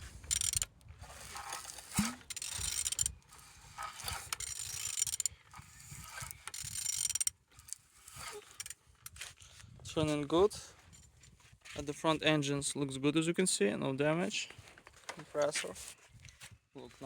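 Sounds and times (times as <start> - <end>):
engine turned over by hand ratcheting: 0.0 - 9.3.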